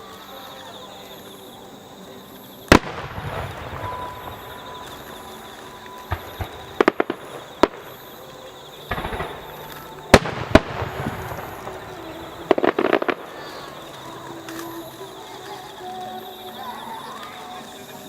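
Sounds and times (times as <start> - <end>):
firework crackling: 0.0 - 18.0
firework bangs: 2.6 - 15.6.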